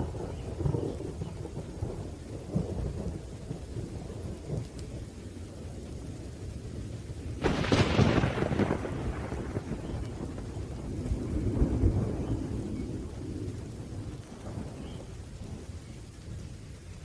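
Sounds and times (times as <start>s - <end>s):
low thunder rumble: 0.0s - 17.0s
rain falling: 0.0s - 17.0s
sharp thunder crack: 7.4s - 14.9s.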